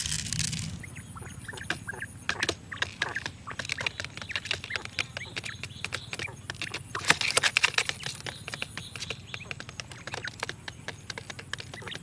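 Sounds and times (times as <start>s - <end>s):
steady low rumble: 0.0s - 1.5s
small birds chirping: 0.0s - 12.0s
light clicks and taps: 1.6s - 12.0s.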